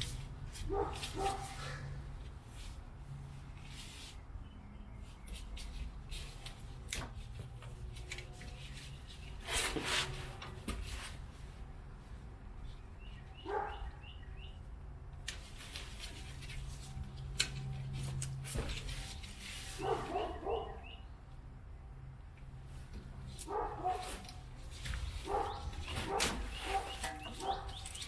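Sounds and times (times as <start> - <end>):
dog barking: 0.7 - 1.7, 13.4 - 14.0, 19.8 - 21.0, 23.4 - 24.2, 25.2 - 27.8.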